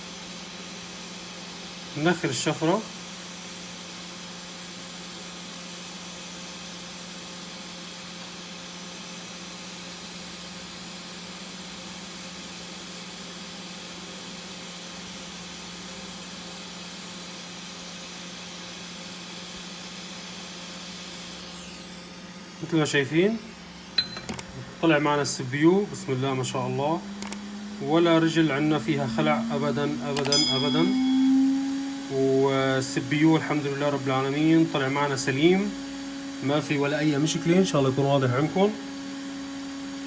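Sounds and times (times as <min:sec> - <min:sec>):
hot air blower hissing: 0:00.0 - 0:40.0
low hum: 0:25.8 - 0:38.6.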